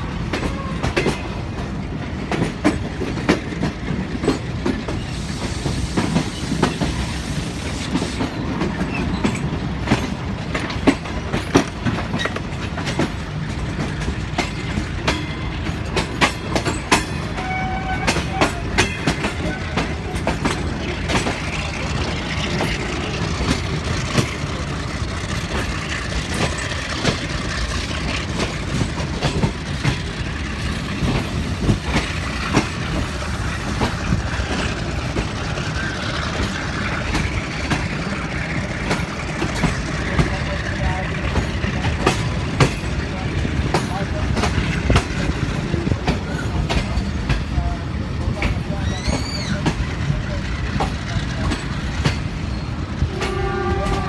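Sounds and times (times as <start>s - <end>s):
train wheels rumbling on rails: 0.0s - 54.0s
wheels clicking over rail joints: 0.0s - 54.0s.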